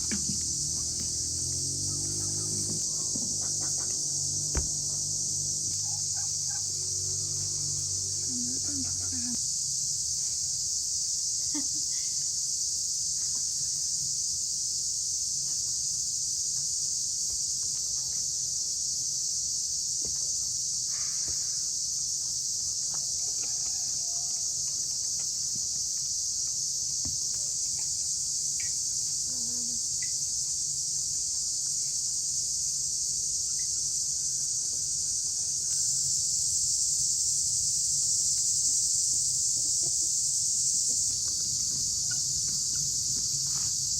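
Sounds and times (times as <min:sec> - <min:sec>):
insects chorus: 0:00.0 - 0:43.9.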